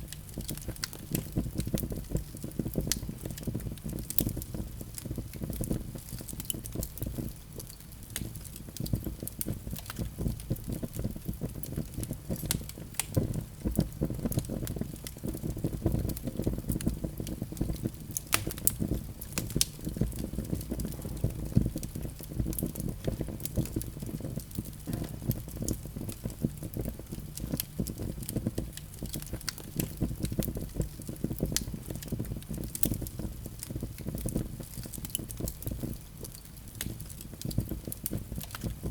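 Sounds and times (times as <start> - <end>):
fire crackling and popping: 0.0 - 38.9.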